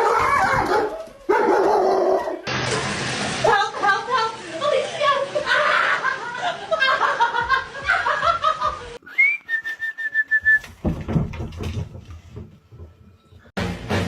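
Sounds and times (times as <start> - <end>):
knocks: 10.7 - 14.0.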